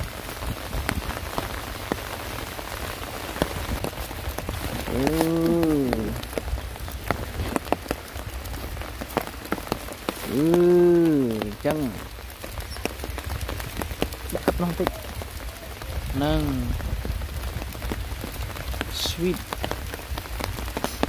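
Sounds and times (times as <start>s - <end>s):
rain falling: 0.0s - 21.0s
long low rising falling calls: 4.6s - 17.5s.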